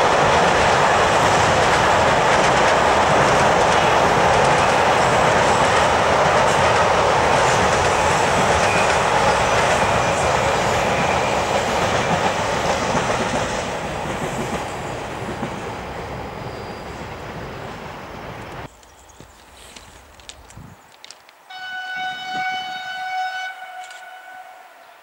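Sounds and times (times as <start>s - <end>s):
freight train wheels clattering: 0.0s - 15.8s.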